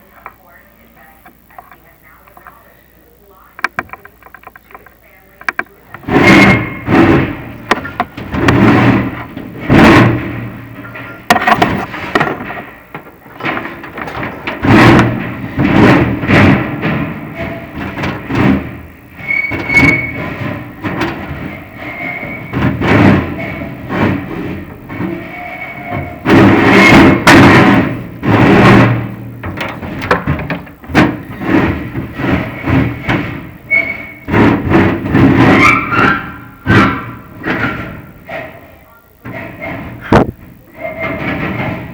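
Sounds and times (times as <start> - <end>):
camera knocking on metal flue: 3.6 - 10.0, 11.2 - 16.9.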